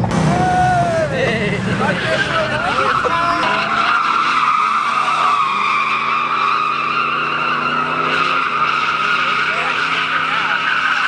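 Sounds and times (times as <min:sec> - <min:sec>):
truck engine running: 0:00.0 - 0:06.9
tires squealing: 0:00.0 - 0:11.0.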